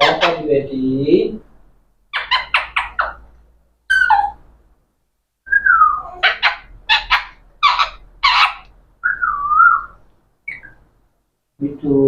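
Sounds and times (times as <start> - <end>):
parrot whistling: 2.1 - 3.2, 3.9 - 4.4, 5.5 - 10.8
parrot harsh calls: 2.1 - 3.3, 3.9 - 4.5, 5.5 - 10.8.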